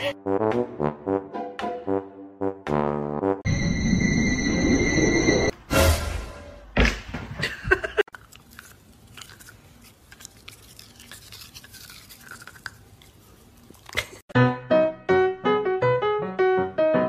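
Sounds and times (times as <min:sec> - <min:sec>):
dog gnawing plastic toothbrush: 0:08.1 - 0:14.2.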